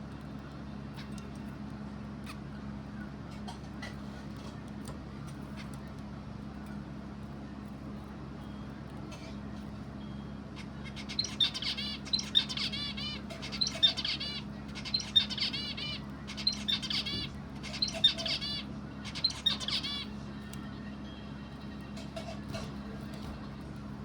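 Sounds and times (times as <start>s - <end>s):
songbird chirping: 10.0s - 21.7s.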